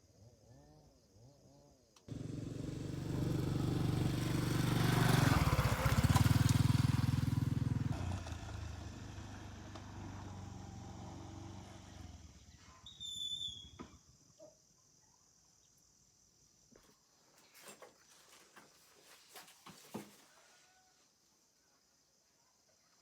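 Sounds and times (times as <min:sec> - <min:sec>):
vehicle engine: 0:02.1 - 0:12.7
insect-like high-pitched tone: 0:12.8 - 0:15.2.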